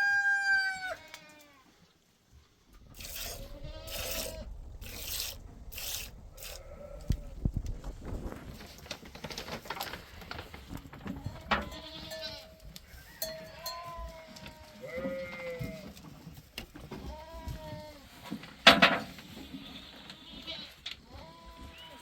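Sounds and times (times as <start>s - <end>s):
goats bleating: 3.0s - 4.5s, 11.2s - 12.6s, 13.4s - 16.0s, 19.7s - 22.0s.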